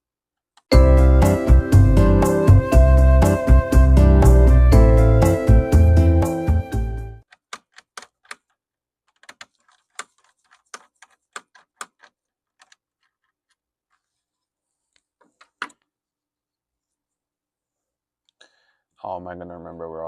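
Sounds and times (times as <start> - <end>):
background music: 0.7 - 7.2.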